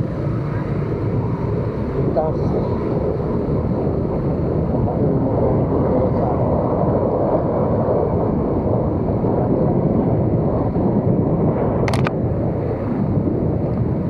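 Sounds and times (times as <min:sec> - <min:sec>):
wind noise on microphone: 0:00.0 - 0:14.0.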